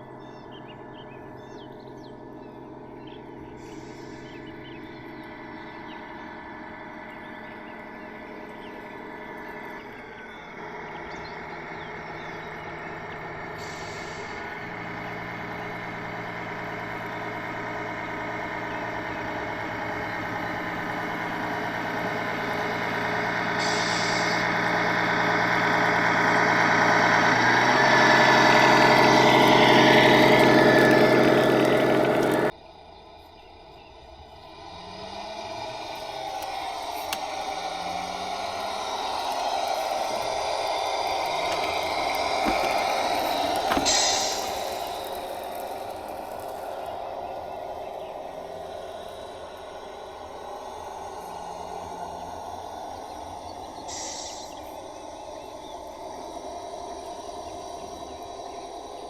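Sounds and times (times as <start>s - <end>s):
toy vehicle motor running: 11.8s - 32.5s, 34.8s - 59.0s.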